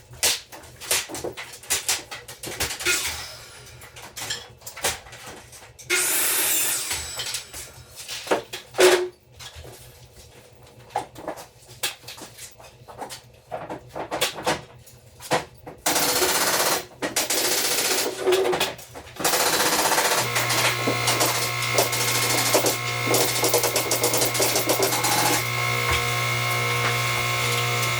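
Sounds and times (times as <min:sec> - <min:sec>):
power tool running with whine: 0:19.2 - 0:27.9.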